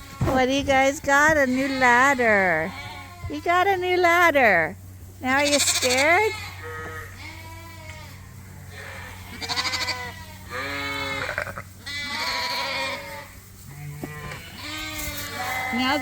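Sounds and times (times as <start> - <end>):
sheep bleating: 5.3 - 16.0.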